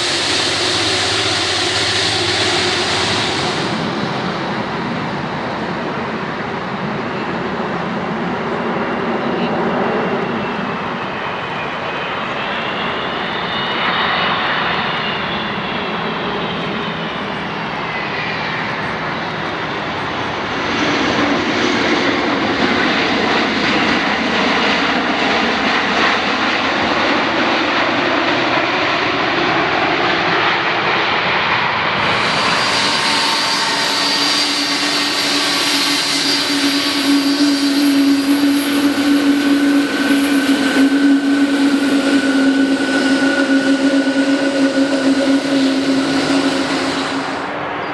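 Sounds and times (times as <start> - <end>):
airplane engines roaring: 0.0 - 47.9
whining tones: 31.9 - 47.8.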